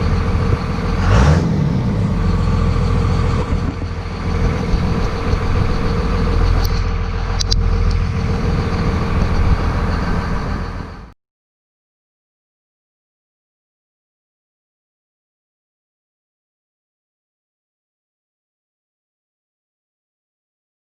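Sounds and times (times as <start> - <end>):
turbo diesel engine running: 0.0 - 11.2.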